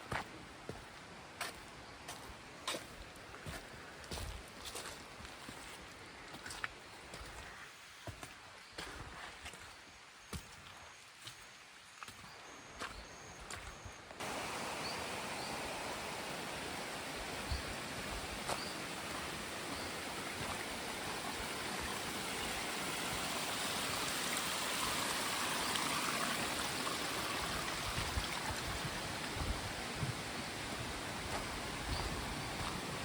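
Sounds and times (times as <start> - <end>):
flowing water rushing: 14.2 - 33.0.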